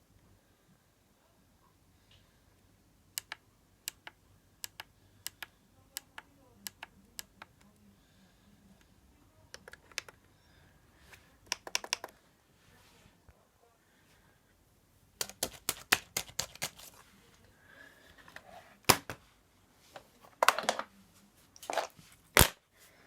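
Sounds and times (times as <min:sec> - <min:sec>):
plastic clicks and taps on laptop: 0:11.5 - 0:12.2, 0:15.2 - 0:16.9.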